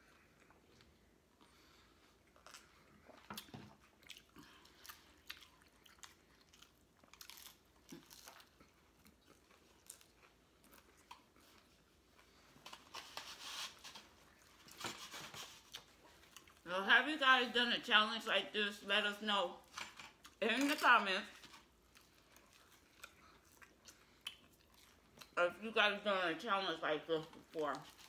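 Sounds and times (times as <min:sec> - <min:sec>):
chewing and crunching tacos: 0:00.0 - 0:16.7, 0:21.4 - 0:25.4.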